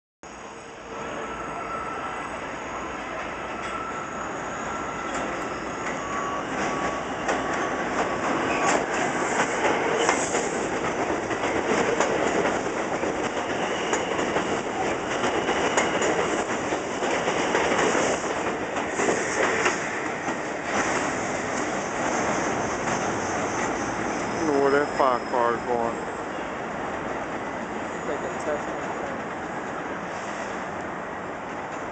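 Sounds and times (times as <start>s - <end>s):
high wheel squeal: 0.3s - 11.1s, 13.1s - 16.9s, 19.1s - 26.6s, 27.4s - 28.7s
train wheels clattering over rails: 5.1s - 25.0s.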